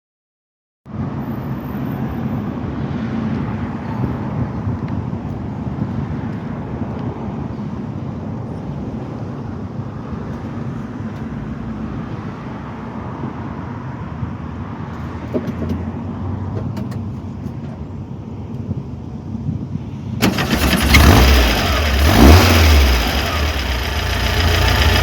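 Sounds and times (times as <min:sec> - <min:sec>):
vehicle engine humming: 0:20.2 - 0:25.0.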